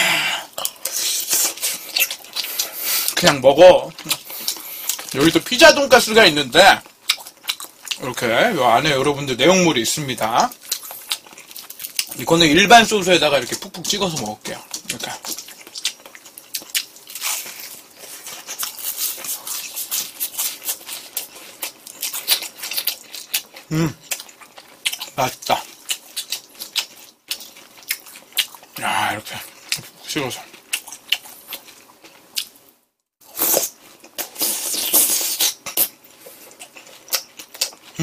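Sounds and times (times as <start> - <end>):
crisp chewing crunches: 0.6 - 5.4, 6.2 - 12.6, 13.3 - 32.7, 33.3 - 38.0.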